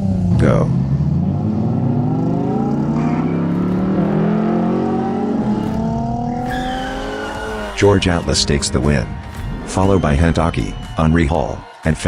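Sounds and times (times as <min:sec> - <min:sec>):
higher engine tone: 0:00.0 - 0:07.8
racing car engines accelerating: 0:00.0 - 0:09.7.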